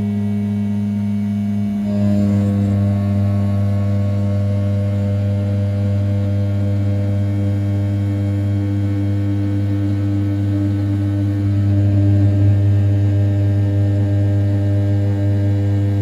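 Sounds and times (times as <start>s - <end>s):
router spindle humming: 0.0s - 16.0s.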